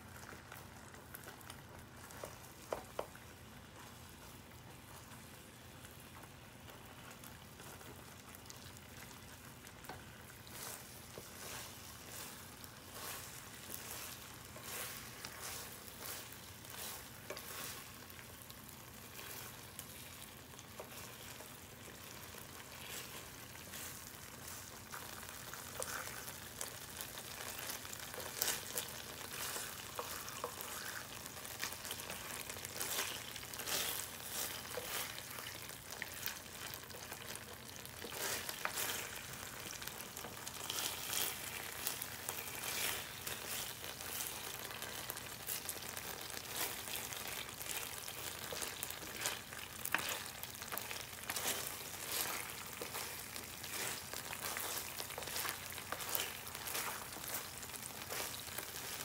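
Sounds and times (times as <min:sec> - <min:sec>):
eel sizzling with pops: 0:00.0 - 0:59.0
spatula pushing food in pan: 0:00.1 - 0:59.0.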